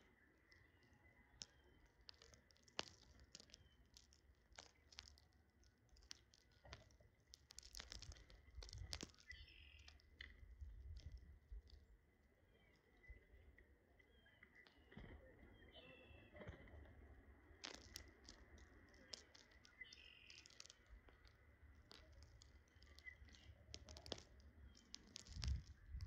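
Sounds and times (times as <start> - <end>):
faint sharp clicks and taps: 0.5 - 11.9, 17.6 - 26.0.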